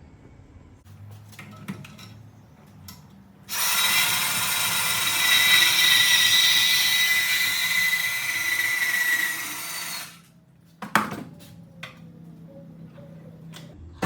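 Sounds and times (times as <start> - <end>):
power tool cutting pipe: 3.5 - 10.3.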